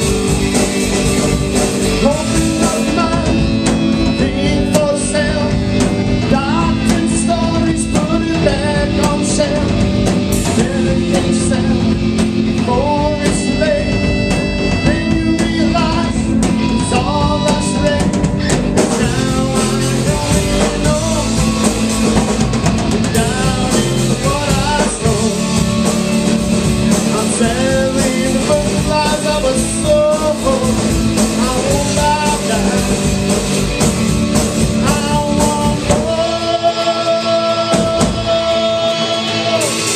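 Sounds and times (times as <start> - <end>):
person singing: 0.0 - 39.9
rock band playing live: 0.0 - 39.9.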